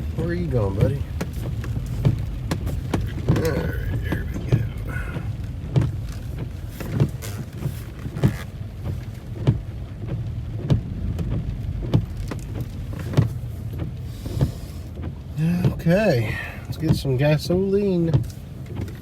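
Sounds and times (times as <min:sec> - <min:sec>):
car engine humming: 0:00.0 - 0:19.0
sharp regular engine knock: 0:00.1 - 0:07.2.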